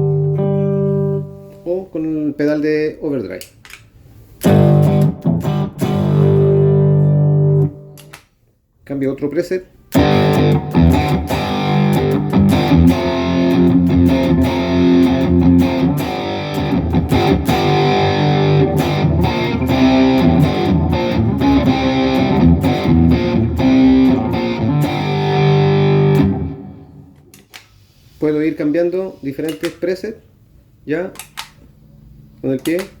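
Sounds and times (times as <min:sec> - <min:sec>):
electric guitar chords: 0:00.0 - 0:01.6, 0:04.4 - 0:08.1, 0:09.9 - 0:27.3.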